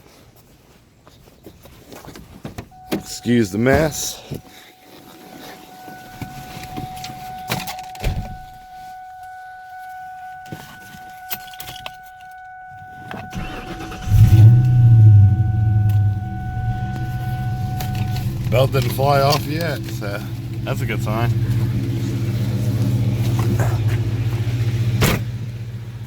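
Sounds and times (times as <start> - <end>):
steady high-pitched tone: 8.6 - 19.8
car engine starting and revving: 12.7 - 26.0.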